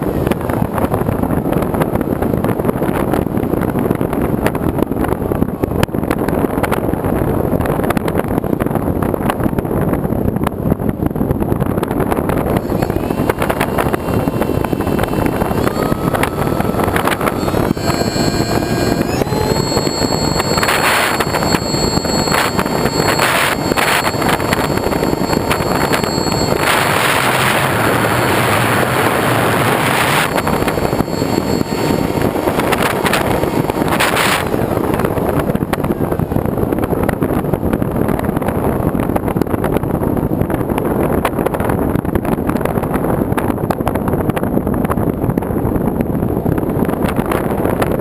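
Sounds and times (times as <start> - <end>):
wind rushing over microphone: 0.0 - 48.0.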